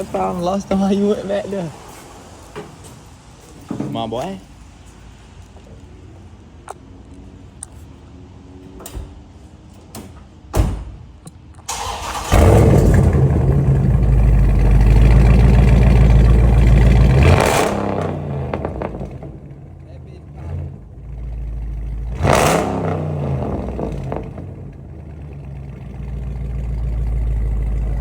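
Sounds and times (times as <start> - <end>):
thump: 10.6 - 11.0
car engine starting and running: 11.6 - 28.0.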